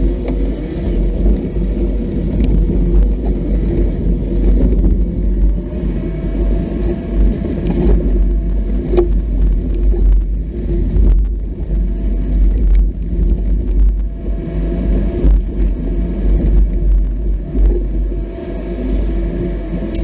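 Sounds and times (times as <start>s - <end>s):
off-road vehicle engine rumble: 0.0s - 20.0s.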